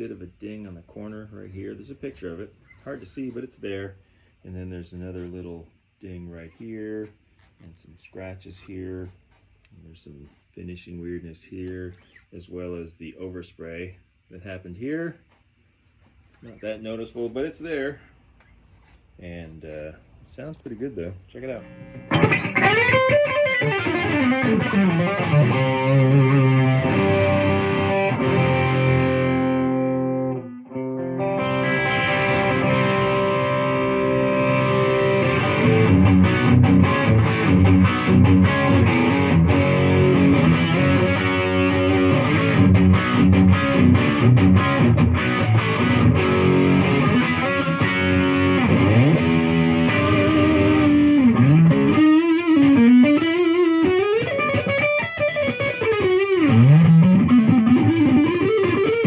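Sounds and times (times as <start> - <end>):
distorted electric guitar: 21.4 - 59.0.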